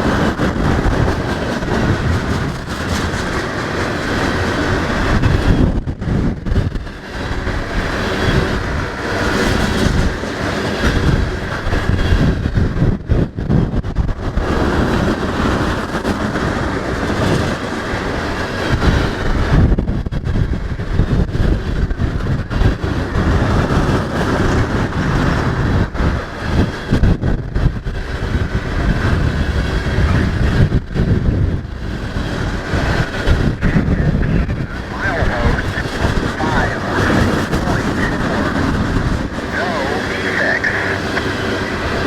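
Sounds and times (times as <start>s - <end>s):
freight train wheels clattering: 0.0s - 42.0s.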